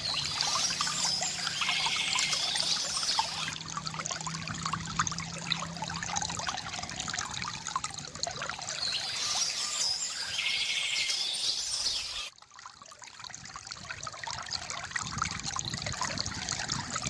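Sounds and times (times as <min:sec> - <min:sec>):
birds chirping: 0:00.0 - 0:03.6, 0:08.7 - 0:12.3
water trickling from fountain: 0:00.0 - 0:17.0.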